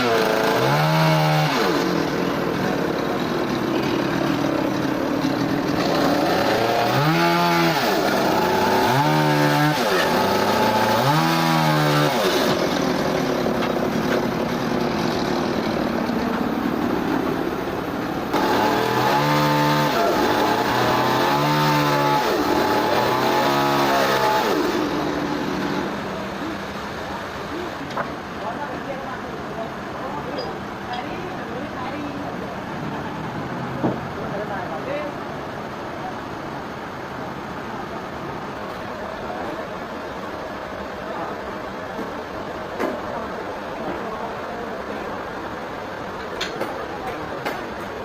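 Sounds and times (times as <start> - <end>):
engine revving: 0.0 - 15.8, 18.3 - 26.0
steady machine noise: 0.0 - 26.8.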